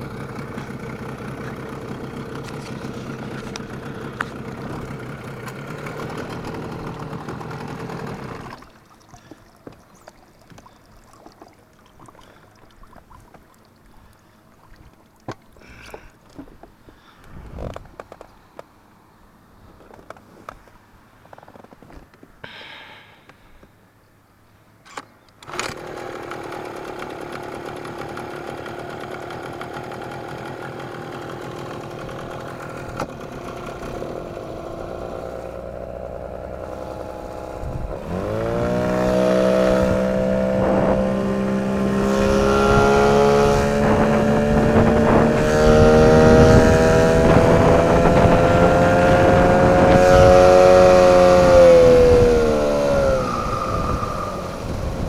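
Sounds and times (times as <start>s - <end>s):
outboard motor running: 0.0s - 18.3s, 25.4s - 55.0s
high squealing whistle: 53.0s - 54.8s.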